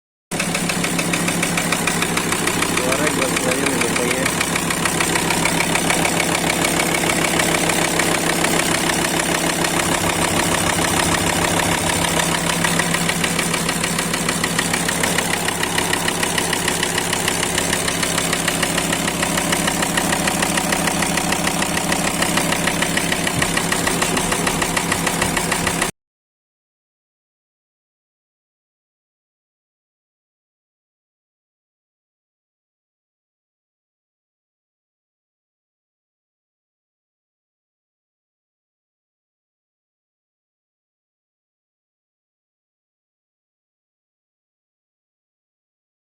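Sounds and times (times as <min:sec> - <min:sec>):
diesel engine idling: 0:00.3 - 0:25.9
rhythmic engine knock: 0:00.3 - 0:25.9.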